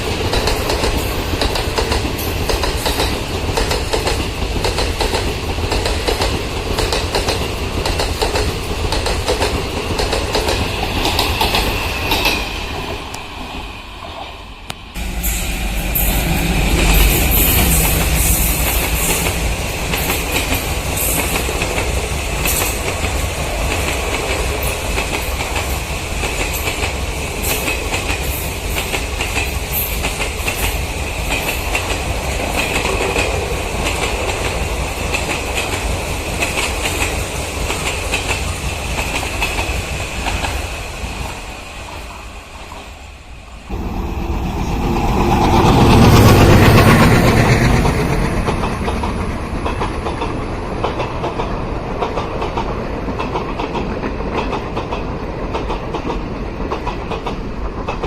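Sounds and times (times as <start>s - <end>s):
train wheels clattering over rail joints: 0.0s - 13.1s
high ringing of wheels on track: 14.7s - 40.8s, 43.7s - 51.2s.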